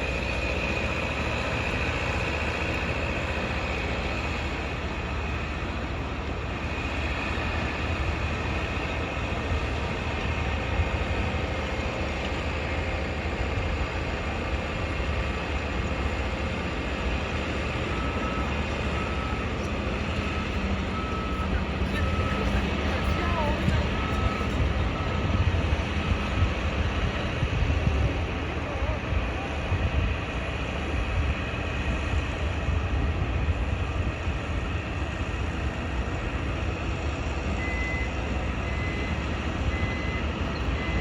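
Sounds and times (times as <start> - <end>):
vehicle reversing alarm beeps: 0.0 - 30.3, 33.8 - 41.0
city traffic rumble: 0.0 - 41.0
construction site din: 0.0 - 41.0.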